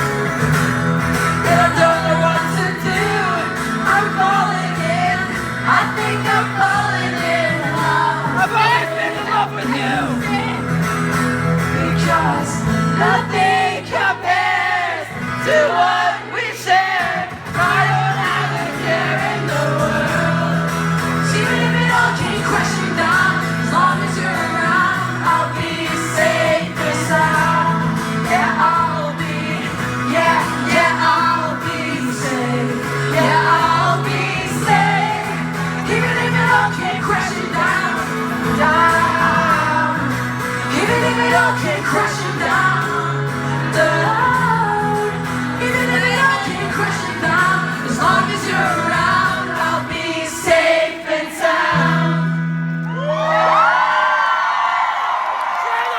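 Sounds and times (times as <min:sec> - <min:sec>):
live rock band playing: 0:00.0 - 0:06.3, 0:07.3 - 0:13.5
sung vocals: 0:00.0 - 0:53.7.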